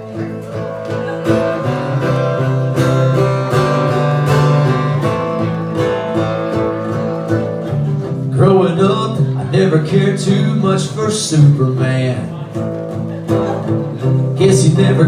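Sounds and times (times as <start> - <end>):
acoustic guitar picking and strumming: 0.0 - 15.0.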